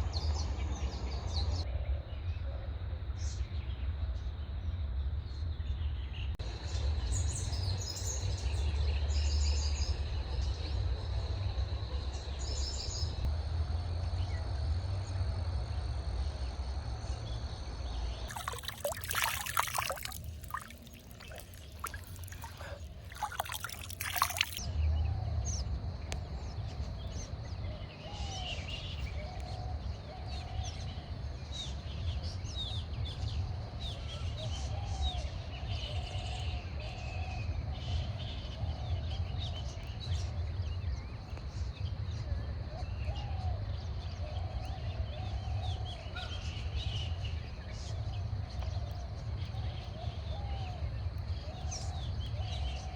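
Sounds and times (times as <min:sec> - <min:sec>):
birds chirping: 0:18.2 - 0:24.6
crackling splashing noise: 0:18.2 - 0:24.6
water trickling and flowing: 0:18.2 - 0:24.6.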